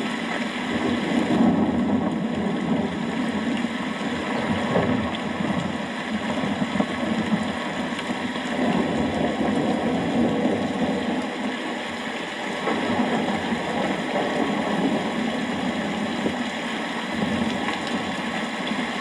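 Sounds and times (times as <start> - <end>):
steady rain: 0.0 - 19.0
distant thunder rumbling: 0.7 - 11.5.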